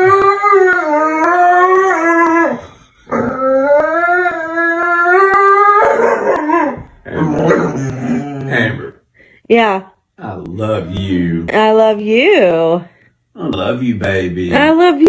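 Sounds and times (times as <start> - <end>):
dog howling: 0.0 - 8.9.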